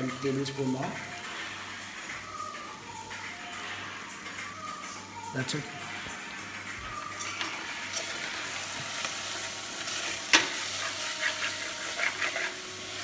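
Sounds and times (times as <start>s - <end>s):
onions sizzling in a pan: 0.0s - 13.0s
spoon scraping a pan: 7.1s - 13.0s.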